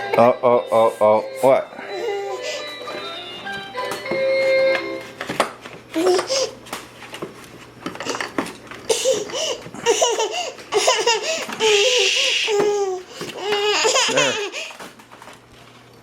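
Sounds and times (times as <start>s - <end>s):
toddler laughing and babbling: 5.9s - 6.6s, 8.9s - 14.7s.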